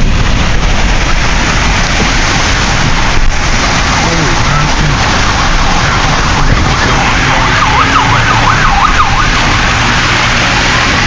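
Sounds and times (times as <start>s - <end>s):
road and tyre noise: 0.0s - 11.0s
emergency siren yelping: 4.4s - 11.0s.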